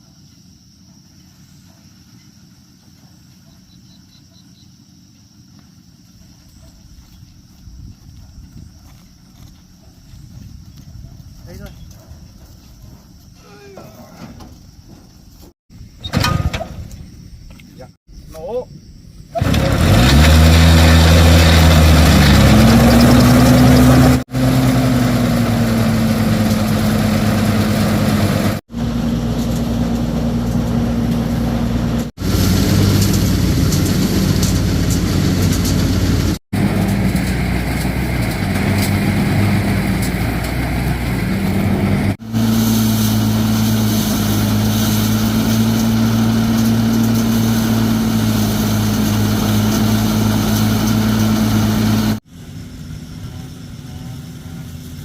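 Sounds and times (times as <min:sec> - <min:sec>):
engine running: 0:19.4 - 0:55.0.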